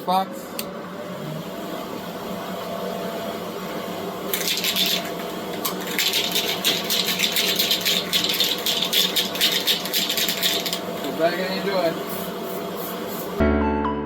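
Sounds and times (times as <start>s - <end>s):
exhaust fan humming: 0.0s - 13.4s
spray can rattling: 4.3s - 11.1s.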